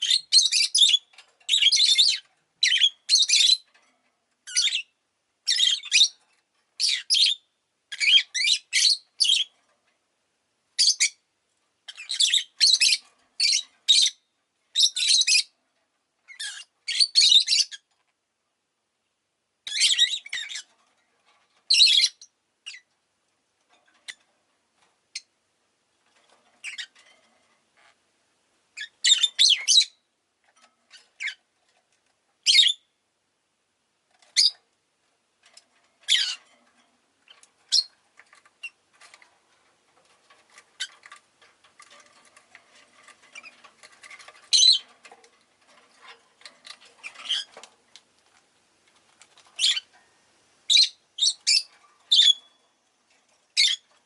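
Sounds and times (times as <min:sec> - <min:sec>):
lovebirds chirping and squawking: 0:00.0 - 0:03.8, 0:04.4 - 0:06.2, 0:06.8 - 0:09.6, 0:10.8 - 0:11.2, 0:11.8 - 0:15.6, 0:16.3 - 0:17.9, 0:19.7 - 0:22.9, 0:23.9 - 0:24.3, 0:26.2 - 0:27.4, 0:28.8 - 0:31.5, 0:32.4 - 0:32.9, 0:34.2 - 0:34.6, 0:35.5 - 0:47.7, 0:49.0 - 0:50.0, 0:50.7 - 0:54.0.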